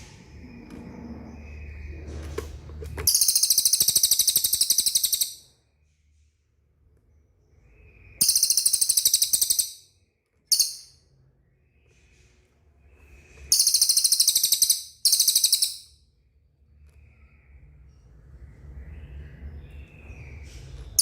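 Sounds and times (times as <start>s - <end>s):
bird trilling: 3.1s - 5.5s, 8.1s - 9.9s, 10.5s - 11.0s, 13.5s - 16.0s.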